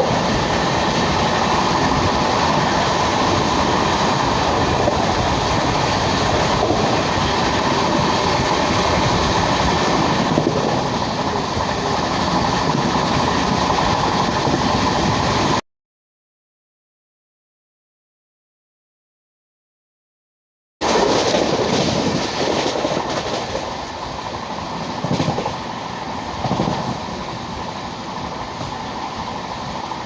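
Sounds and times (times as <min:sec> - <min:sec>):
train wheels rumbling and rattling: 0:00.0 - 0:15.6, 0:20.8 - 0:30.0.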